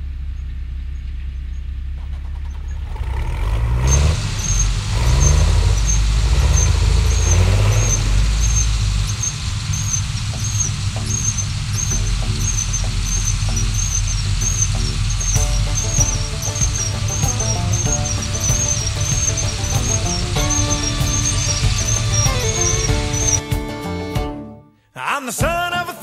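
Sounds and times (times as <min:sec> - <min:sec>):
heavy machinery engine revving: 0:01.9 - 0:24.2
high squeak: 0:03.8 - 0:24.3.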